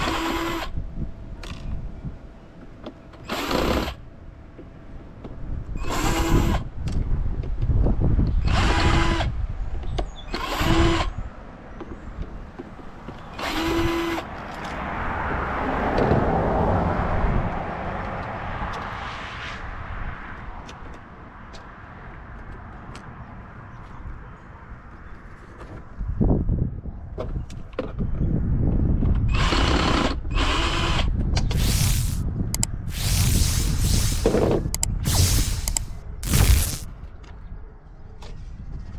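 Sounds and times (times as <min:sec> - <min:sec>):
power drill whirring: 0:31.5 - 0:36.9
rushing noise: 0:31.5 - 0:36.9.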